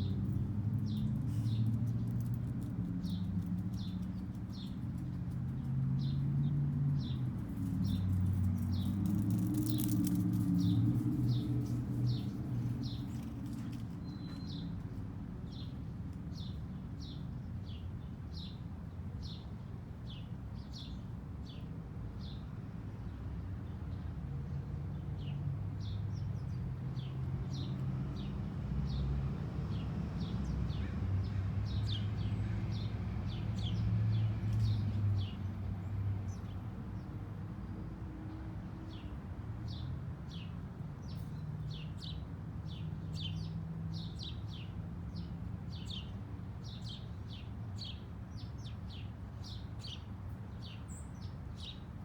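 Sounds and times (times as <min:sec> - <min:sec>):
small birds chirping: 0:00.0 - 0:15.8, 0:29.7 - 0:37.8, 0:38.9 - 0:52.0.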